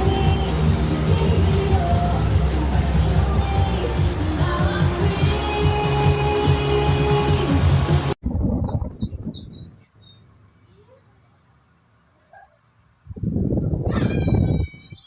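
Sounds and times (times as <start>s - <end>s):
music: 0.0s - 8.2s
loud low rumbling noise: 7.7s - 9.6s
birds chirping: 8.5s - 15.0s.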